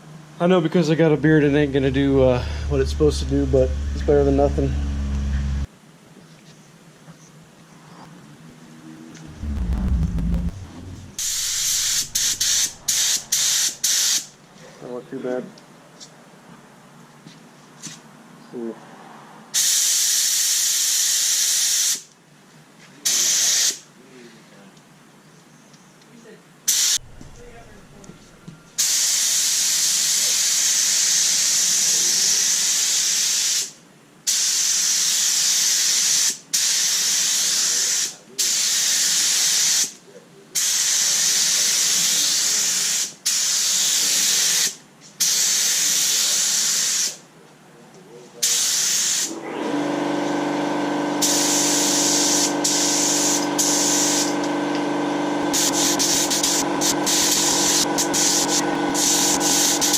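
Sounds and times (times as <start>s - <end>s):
steady multi-tone hum: 8.2s - 14.3s, 27.0s - 29.0s
paint spray gun hissing: 11.2s - 14.2s, 55.5s - 59.9s.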